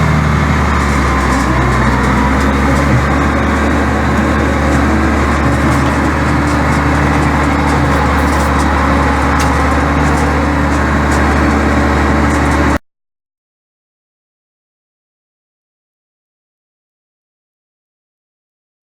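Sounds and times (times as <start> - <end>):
tractor engine running: 0.0 - 12.8
scraper over gravel: 1.1 - 11.6.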